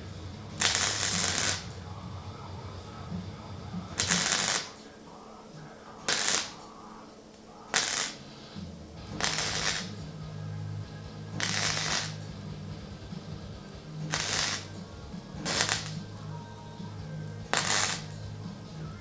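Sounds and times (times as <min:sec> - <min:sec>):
welding crackling bursts: 0:00.0 - 0:01.9, 0:02.9 - 0:05.0, 0:05.9 - 0:06.9, 0:07.5 - 0:10.1, 0:11.3 - 0:12.4, 0:13.8 - 0:16.3, 0:17.4 - 0:18.3
background music with bass: 0:00.0 - 0:04.7, 0:08.3 - 0:19.0.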